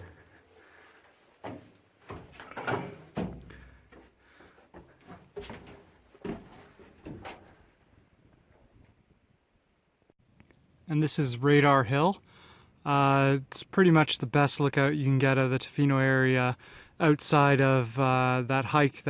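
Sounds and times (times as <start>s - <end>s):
knocks and thumps on metal: 1.4s - 4.1s.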